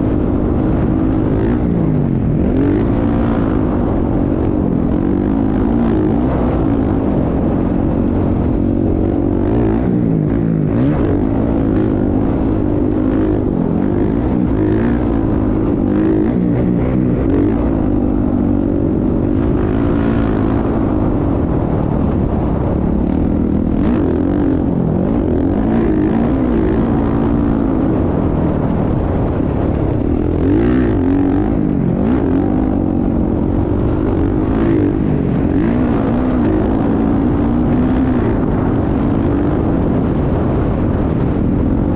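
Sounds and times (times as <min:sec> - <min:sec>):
motocross bike engine revving: 0:00.0 - 0:41.2.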